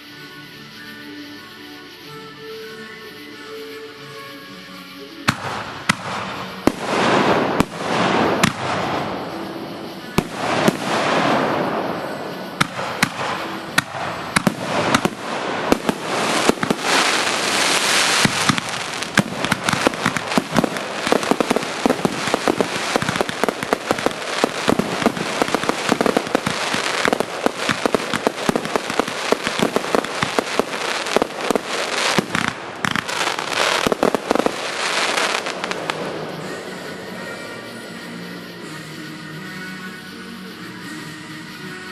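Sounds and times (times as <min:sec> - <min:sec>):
fireworks hissing sprays: 0:00.0 - 0:41.9
fireworks bangs and crackle: 0:05.2 - 0:40.2.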